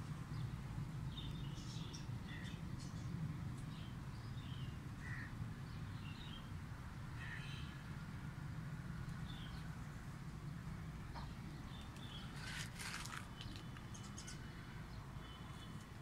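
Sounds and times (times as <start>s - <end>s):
birds chirping: 11.0s - 16.0s.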